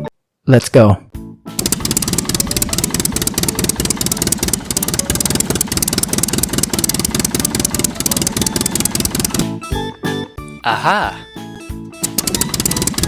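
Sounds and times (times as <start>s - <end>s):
small engine running: 1.6s - 9.6s, 12.0s - 13.0s.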